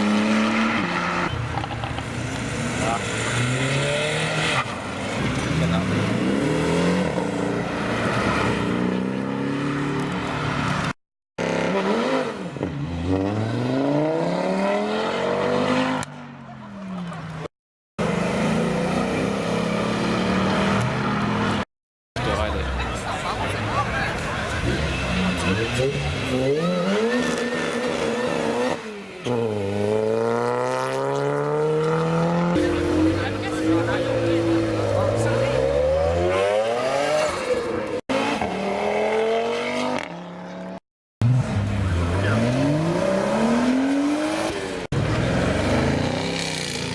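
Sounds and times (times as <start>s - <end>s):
sports car accelerating: 24.6s - 46.8s.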